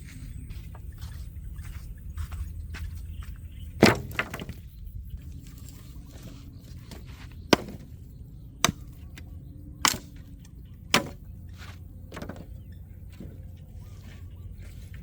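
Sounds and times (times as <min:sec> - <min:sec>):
blade chopping: 0:03.8 - 0:04.5, 0:07.5 - 0:08.0, 0:09.8 - 0:10.2, 0:10.9 - 0:11.2.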